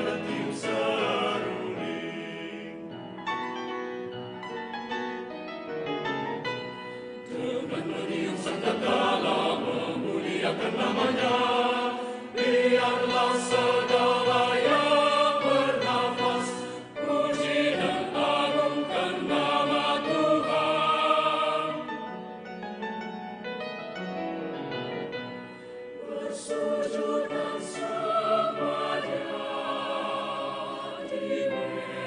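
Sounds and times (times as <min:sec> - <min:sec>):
mixed choir singing: 0:00.0 - 0:02.9, 0:07.2 - 0:22.1, 0:25.9 - 0:32.0.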